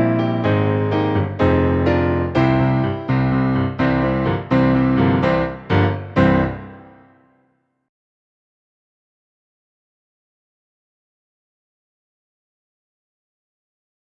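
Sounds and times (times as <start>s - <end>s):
piano chords: 0.0s - 7.5s.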